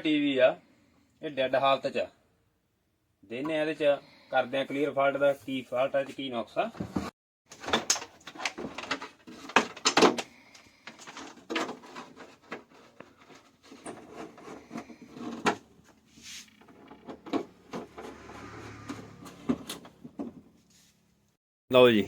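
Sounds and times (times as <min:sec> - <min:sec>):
clicks and clatter on a workbench: 0:06.8 - 0:16.0.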